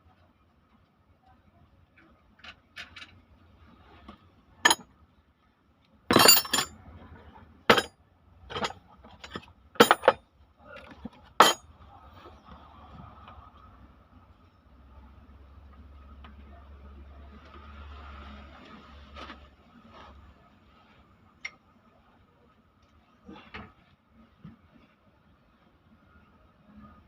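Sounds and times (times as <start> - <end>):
metal tools clinking: 6.1 - 6.7, 7.7 - 7.9, 8.5 - 10.2, 11.4 - 11.6.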